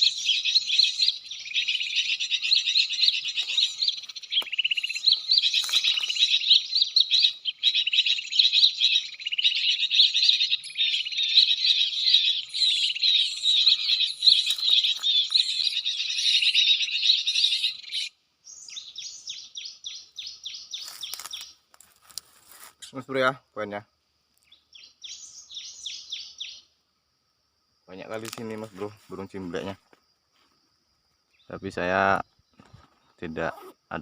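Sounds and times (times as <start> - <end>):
small birds chirping: 0.0 - 21.7, 24.3 - 26.8, 27.9 - 29.8, 30.4 - 34.0.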